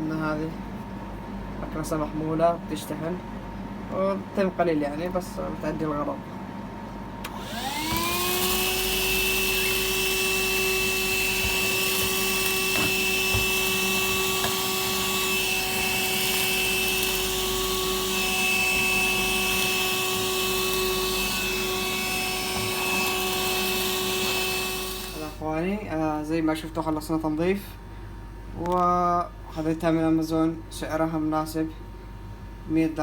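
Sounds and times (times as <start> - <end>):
handheld vacuum motor whine: 7.2 - 25.4.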